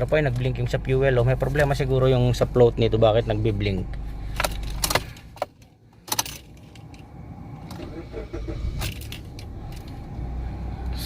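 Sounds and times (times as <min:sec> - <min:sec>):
low steady hum: 0:00.0 - 0:11.0
keys jingling: 0:04.4 - 0:07.1.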